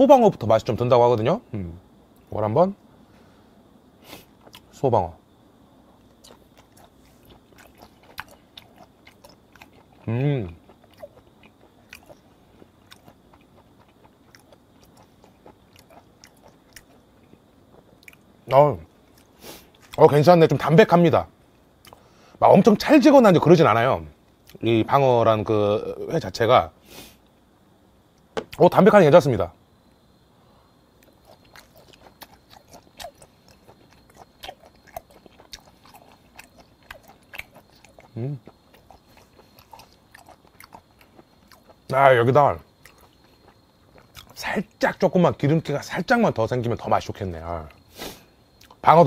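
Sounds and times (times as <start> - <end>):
mouth clicks and smacks chewing: 6.1 - 17.0, 31.0 - 41.9, 42.8 - 44.4.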